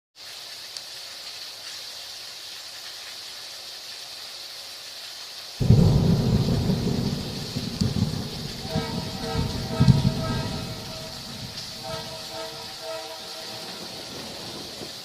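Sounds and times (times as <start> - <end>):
heavy rain hissing: 0.4 - 15.0
thunder rumbling: 5.6 - 15.0.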